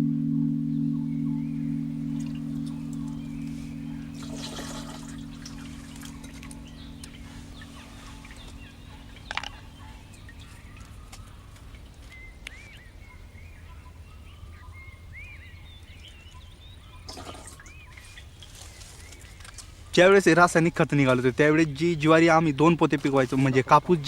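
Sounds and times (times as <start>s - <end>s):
steady low rumble: 0.0s - 11.5s
birds chirping: 0.0s - 24.0s.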